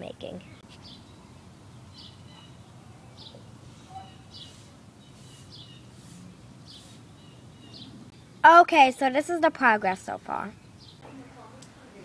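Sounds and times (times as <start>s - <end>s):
bird chirping: 0.4s - 8.4s, 9.9s - 11.3s.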